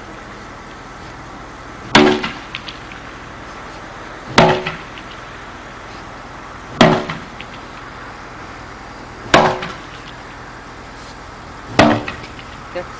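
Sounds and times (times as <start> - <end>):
staff striking a tyre: 1.8 - 3.0, 4.3 - 5.2, 6.7 - 7.6, 9.2 - 10.1, 11.7 - 12.6.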